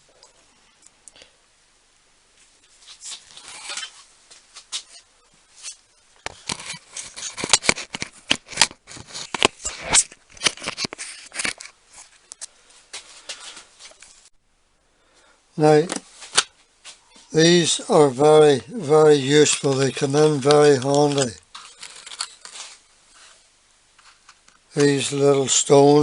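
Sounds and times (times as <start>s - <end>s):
plastic tool cases clicking and rattling: 6.3s - 11.8s, 19.3s - 22.8s.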